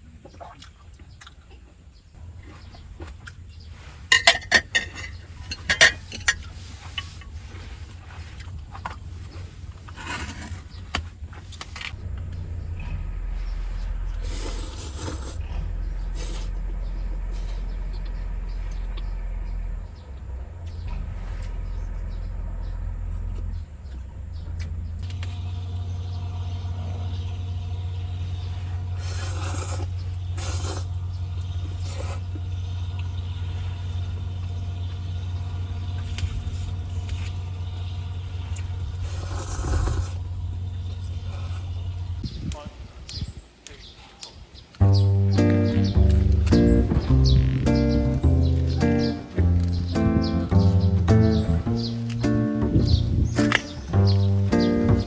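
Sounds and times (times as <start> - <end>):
sharp clicks and rattles: 11.6 - 14.2
car engine running: 11.9 - 28.9, 44.8 - 55.0.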